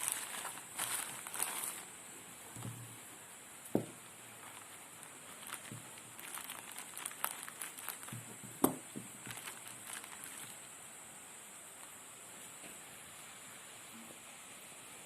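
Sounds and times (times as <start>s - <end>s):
knock: 3.8s - 4.0s.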